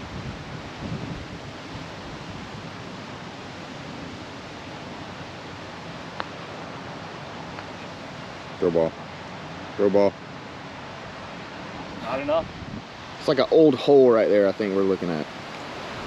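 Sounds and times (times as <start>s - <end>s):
wind on microphone: 0.0s - 8.1s, 11.1s - 13.6s, 15.3s - 16.0s.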